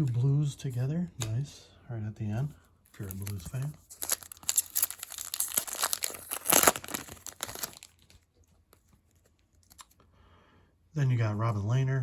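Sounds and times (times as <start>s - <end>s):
foil wrapper tearing and crinkling: 3.0s - 8.2s.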